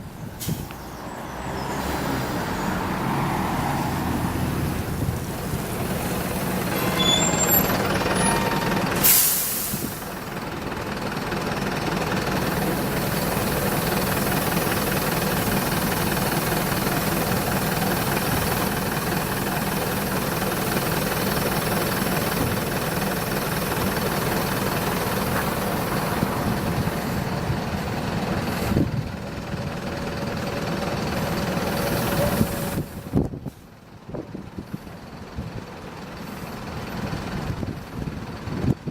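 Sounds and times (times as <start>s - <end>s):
bus engine and road noise: 0.0s - 38.9s
air brake hiss: 0.4s - 0.8s, 6.7s - 10.1s
short high squeaks: 6.7s - 8.7s.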